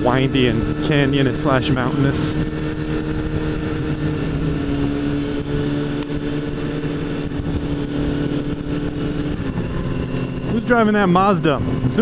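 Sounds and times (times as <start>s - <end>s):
motorcycle engine cruising: 0.0s - 12.0s
wind rush on microphone: 0.0s - 12.0s.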